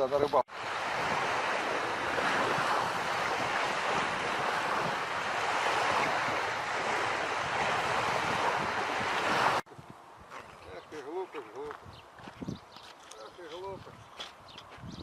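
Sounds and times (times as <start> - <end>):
wind on microphone: 0.0 - 10.8, 11.6 - 12.9, 13.6 - 15.0
small waves washing on shore: 0.5 - 9.7.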